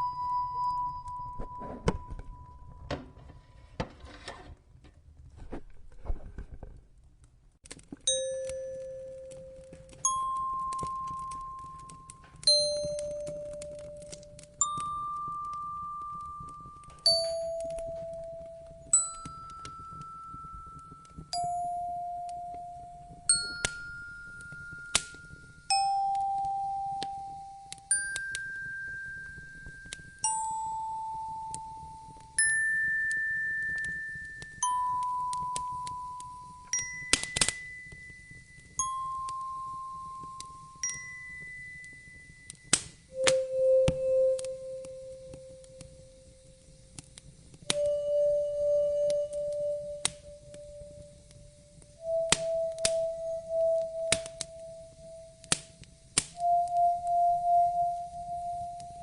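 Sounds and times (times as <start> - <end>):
bell-like chime notes: 0.0 - 2.9, 32.4 - 44.7
wood fire crackling: 3.4 - 59.0.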